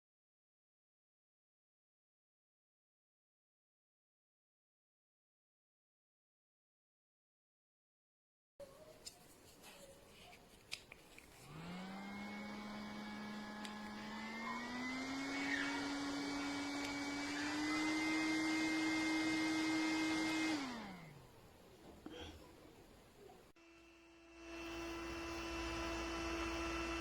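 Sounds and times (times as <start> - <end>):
handheld fan motor whine: 11.4 - 21.2, 23.6 - 27.0.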